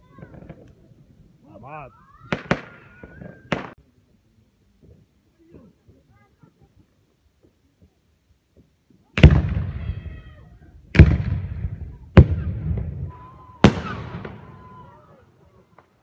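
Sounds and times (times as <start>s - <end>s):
firework bangs with echo: 9.2s - 10.2s, 10.9s - 14.8s.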